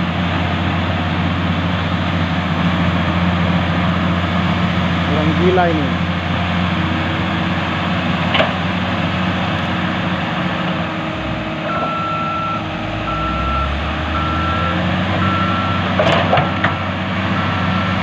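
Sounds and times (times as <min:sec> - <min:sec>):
diesel earthmoving machinery running: 0:00.0 - 0:18.0
backup alarm beeping: 0:11.6 - 0:15.8.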